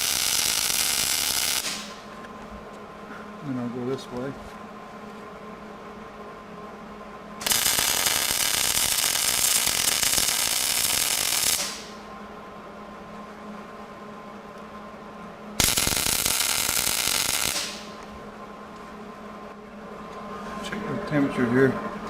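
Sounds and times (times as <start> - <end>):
welding arc crackling: 0.0 - 2.1, 7.4 - 12.0, 15.6 - 18.1.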